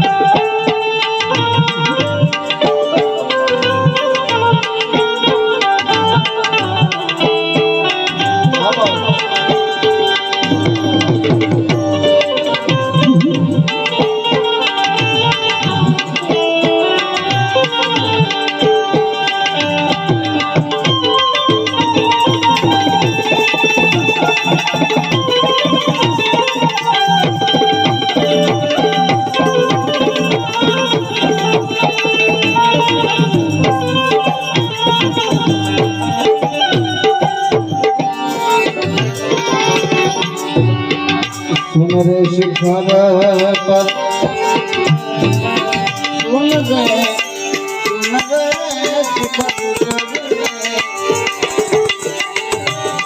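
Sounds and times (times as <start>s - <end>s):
tabla playing fast rhythm: 0.0s - 53.0s
sustained melody over pa: 6.1s - 17.7s.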